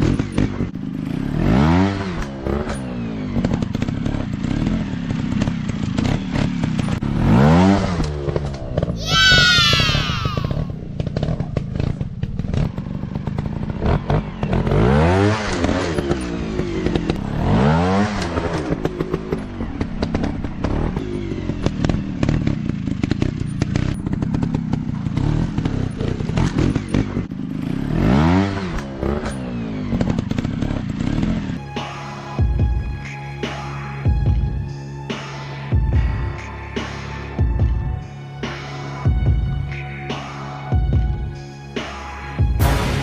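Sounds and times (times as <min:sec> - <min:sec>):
dirt bike engine revving: 0:00.0 - 0:31.6.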